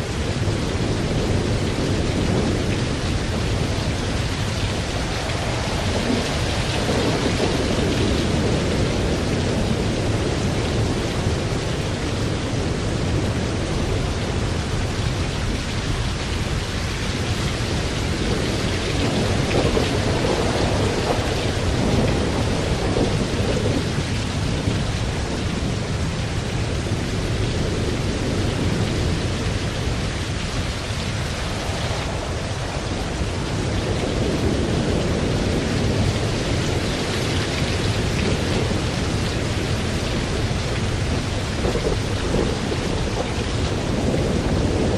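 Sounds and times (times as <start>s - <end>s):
heavy rain: 0.0s - 44.9s
rolling thunder: 0.0s - 44.9s.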